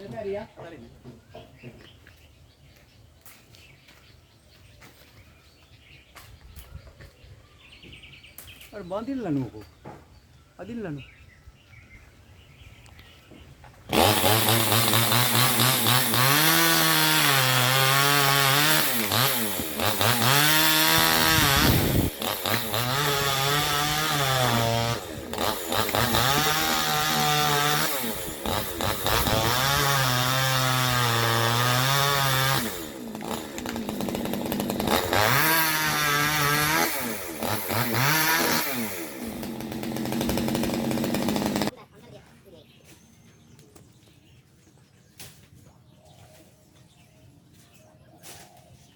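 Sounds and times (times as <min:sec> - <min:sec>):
chainsaw cutting: 0:13.7 - 0:41.8.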